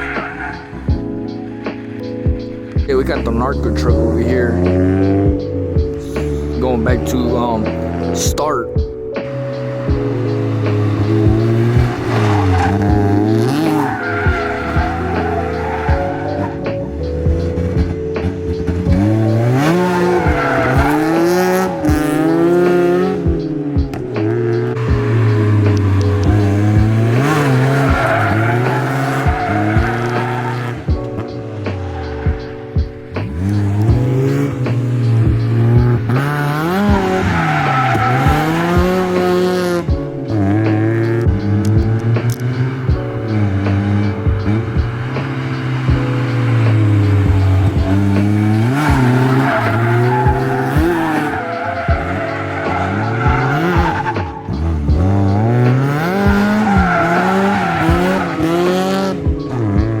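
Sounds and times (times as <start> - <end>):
tyres squealing: 0.0 - 1.4, 9.2 - 60.0
car engine revving: 0.0 - 60.0.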